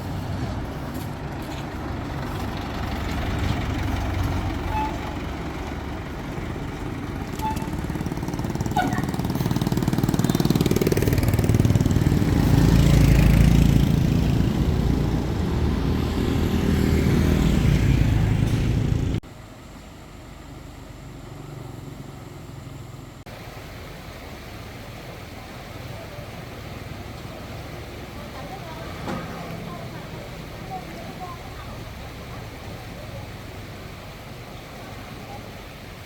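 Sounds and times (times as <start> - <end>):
crane engine under load: 0.0 - 19.2
quieter steady engine-like noise: 0.0 - 36.0.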